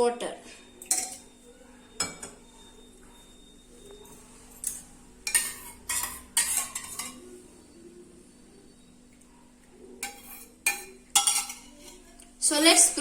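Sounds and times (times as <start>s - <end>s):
utensils and dishes clinking: 0.7s - 7.4s, 10.0s - 13.0s.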